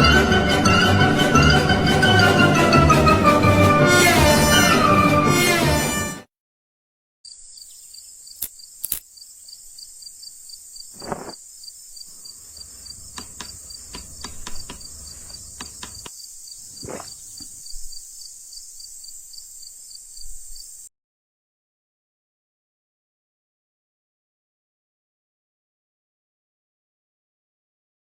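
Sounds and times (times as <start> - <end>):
crickets chirping: 7.2 - 20.9
sharp clicks: 8.4 - 9.1.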